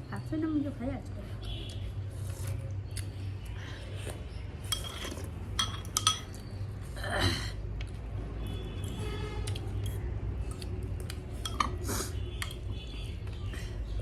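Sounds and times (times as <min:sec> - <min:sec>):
metal spoon scraping a dish: 0:04.1 - 0:06.8, 0:08.8 - 0:13.1.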